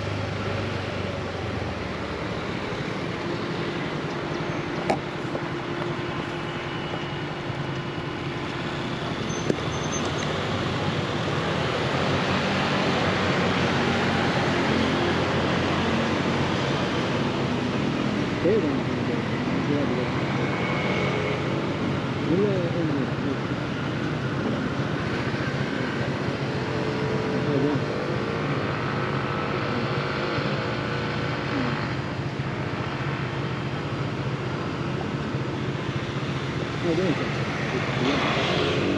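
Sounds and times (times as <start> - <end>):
road and wind noise: 0.0 - 38.9
motor scooter engine hum: 24.2 - 38.9.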